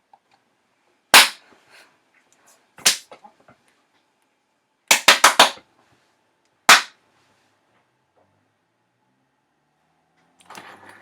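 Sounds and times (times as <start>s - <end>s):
sharp impacts: 1.2s - 1.4s.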